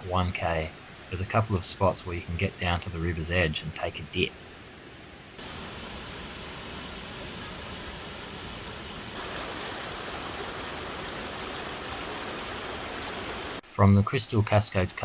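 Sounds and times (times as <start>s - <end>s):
creek water rushing: 4.2s - 13.6s.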